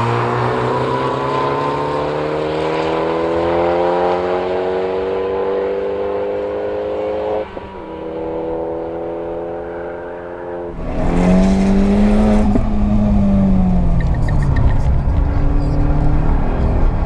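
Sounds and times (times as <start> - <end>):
turbocharged engine revving high: 0.0 - 17.0
louder deeper engine note: 9.2 - 17.0.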